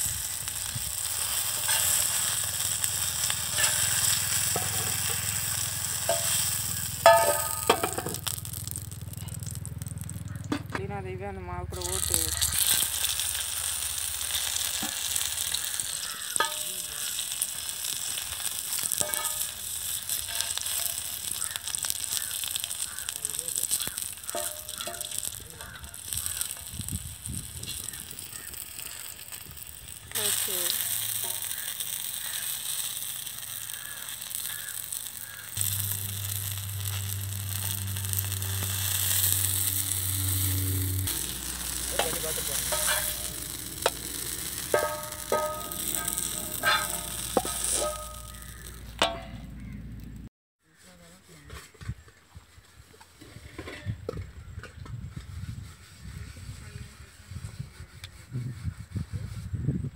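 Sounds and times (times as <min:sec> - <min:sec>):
oil sizzling on hot iron pan: 0:00.0 - 0:10.7, 0:11.7 - 0:49.8
metal spoon scraping: 0:01.1 - 0:08.6, 0:14.3 - 0:49.4.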